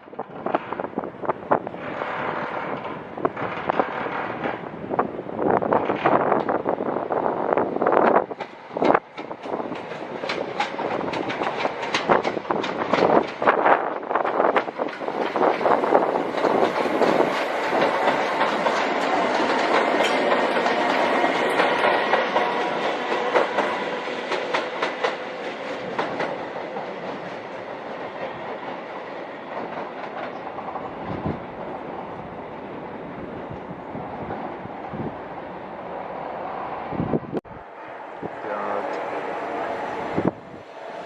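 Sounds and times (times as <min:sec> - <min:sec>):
train wheels clattering: 0:00.0 - 0:06.7, 0:07.9 - 0:31.8.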